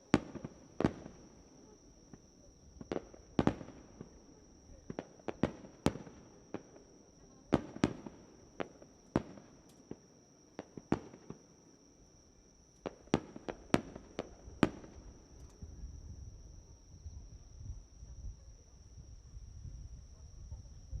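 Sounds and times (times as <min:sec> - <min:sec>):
fireworks bangs: 0:00.0 - 0:01.4, 0:02.0 - 0:06.8, 0:07.5 - 0:10.0, 0:10.6 - 0:11.5, 0:12.8 - 0:15.2.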